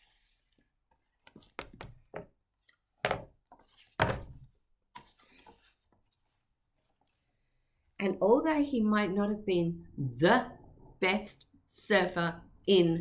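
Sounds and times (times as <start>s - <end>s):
book knocks and thuds: 3.0s - 4.5s.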